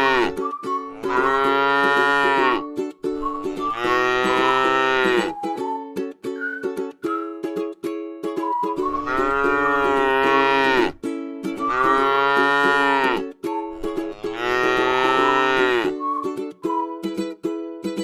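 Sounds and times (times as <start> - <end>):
cow mooing: 1.0 - 2.6, 3.6 - 5.3, 9.0 - 11.0, 11.6 - 13.2, 14.1 - 15.9.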